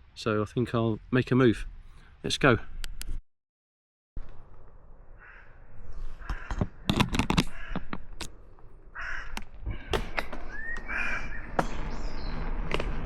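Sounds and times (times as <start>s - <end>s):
crows cawing: 5.1s - 8.2s, 8.9s - 11.6s
sharp clicks and knocks: 6.3s - 8.4s.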